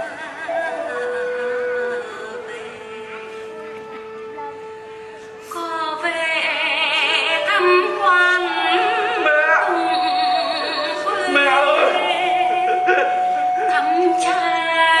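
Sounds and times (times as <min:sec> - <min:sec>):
woman singing with vibrato: 0:00.0 - 0:04.1, 0:05.4 - 0:15.0
held instrumental note: 0:07.7 - 0:15.0.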